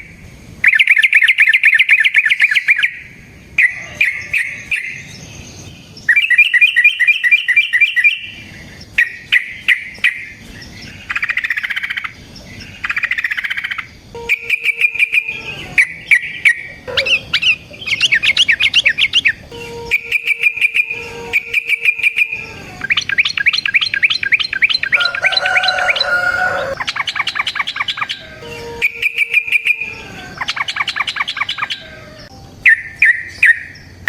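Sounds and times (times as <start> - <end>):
bird singing trills and whistles: 0.0 - 34.0.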